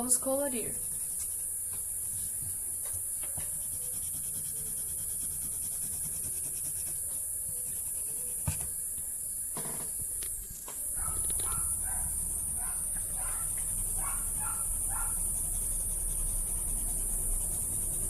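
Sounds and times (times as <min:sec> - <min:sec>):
low hum: 0:10.9 - 0:18.0.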